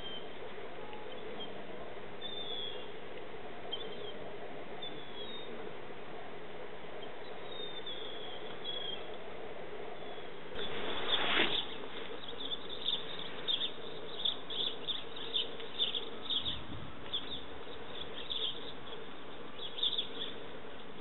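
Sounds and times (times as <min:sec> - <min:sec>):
faint bird chirps: 0:02.2 - 0:02.9, 0:03.7 - 0:04.2, 0:04.8 - 0:05.5, 0:07.0 - 0:09.1, 0:10.0 - 0:20.5.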